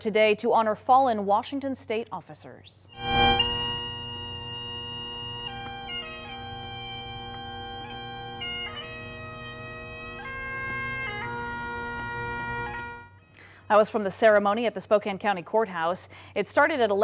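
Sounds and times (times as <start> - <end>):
bagpipes playing slow melody: 2.9 - 13.9.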